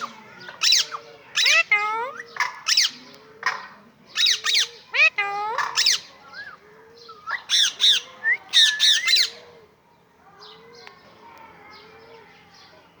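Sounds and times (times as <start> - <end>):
parakeet squawking: 0.0 - 3.0, 4.2 - 6.1, 7.3 - 9.3.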